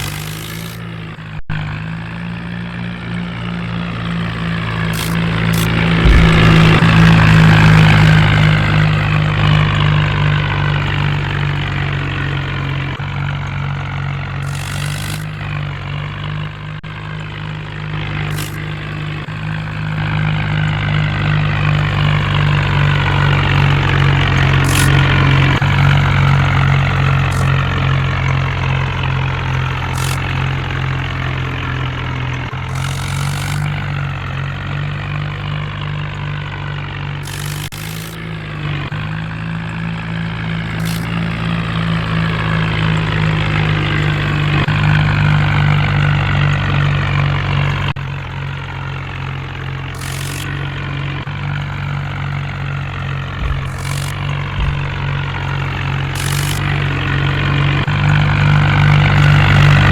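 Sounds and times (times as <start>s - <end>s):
vehicle engine humming: 0.0s - 59.9s
short clicks: 4.9s - 6.9s, 14.5s - 15.4s, 18.3s - 18.6s, 24.6s - 25.2s, 30.0s - 30.5s, 32.7s - 33.8s, 37.2s - 38.2s, 40.8s - 41.2s, 50.0s - 50.6s, 53.4s - 55.4s, 56.2s - 56.9s.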